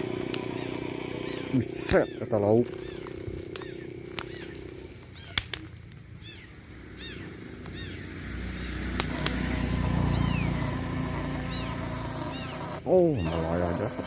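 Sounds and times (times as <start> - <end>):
chirping animal calls: 0.0 - 5.6, 6.2 - 14.0
low engine rumble: 0.0 - 14.0
outdoor ambience: 0.0 - 14.0
sharp clicks: 1.8 - 6.0, 8.6 - 9.5.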